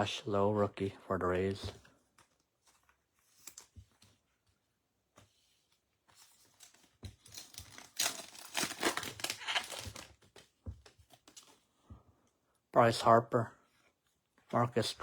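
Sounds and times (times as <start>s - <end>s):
foil wrapper crinkling: 6.5s - 10.5s.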